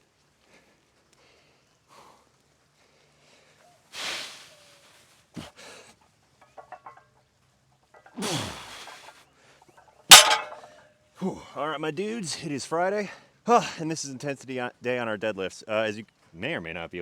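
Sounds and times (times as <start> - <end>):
barbell plates clinking: 6.4 - 7.1, 10.1 - 10.6
barbell thud on ground: 10.1 - 10.6.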